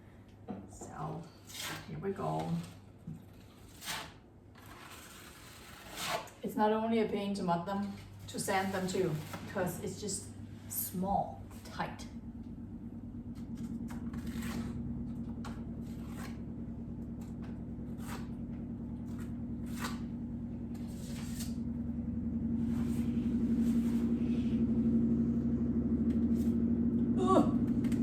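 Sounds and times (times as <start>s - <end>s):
drywall knife scraping wall: 1.4s - 6.5s, 7.9s - 9.9s, 13.6s - 20.1s, 20.7s - 21.6s, 22.6s - 24.4s
steady low hum: 6.4s - 28.0s.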